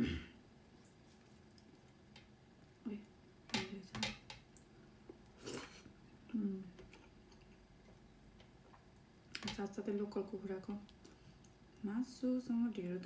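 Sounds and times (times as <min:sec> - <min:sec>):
quiet chewing: 0:00.7 - 0:03.2, 0:06.8 - 0:09.4.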